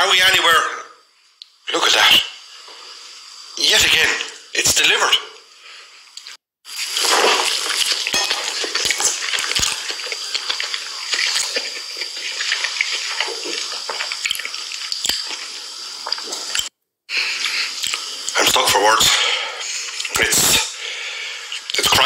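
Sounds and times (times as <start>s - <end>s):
chewing crunchy fried food: 6.2s - 18.4s.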